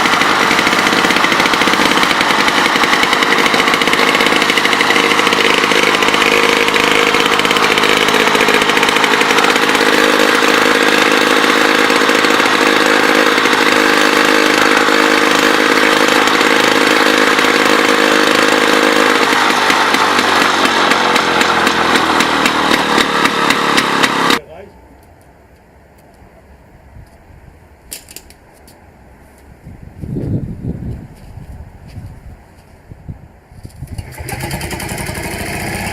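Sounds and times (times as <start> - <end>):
old diesel engine running: 0.0 - 24.4, 33.9 - 35.9.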